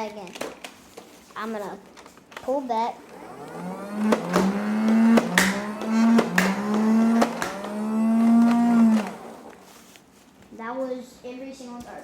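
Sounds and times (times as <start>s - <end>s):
toy blaster flywheels whirring: 2.9s - 9.6s.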